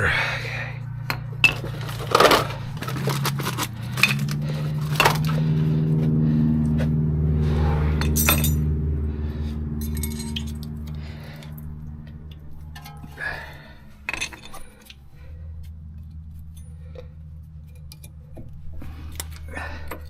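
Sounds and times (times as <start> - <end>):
steady low hum: 0.0 - 20.0
metallic clinks of brake pads: 1.0 - 5.5, 8.0 - 8.6, 9.8 - 20.0.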